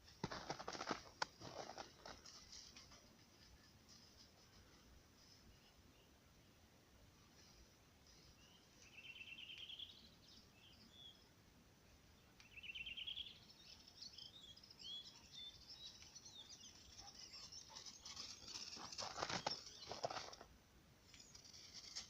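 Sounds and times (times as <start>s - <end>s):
bird chirps: 8.1s - 11.3s, 12.4s - 20.4s
songbird trilling: 12.4s - 13.4s.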